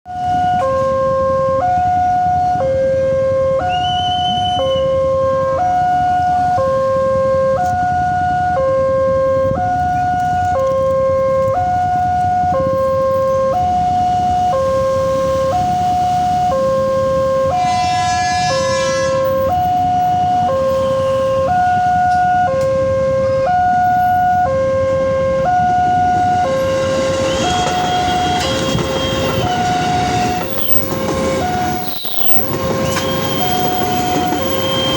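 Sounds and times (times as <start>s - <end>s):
approaching train rush: 0.1s - 34.9s
level crossing two-tone alarm: 0.1s - 34.9s
traffic noise: 0.1s - 34.9s
horn: 17.4s - 19.7s.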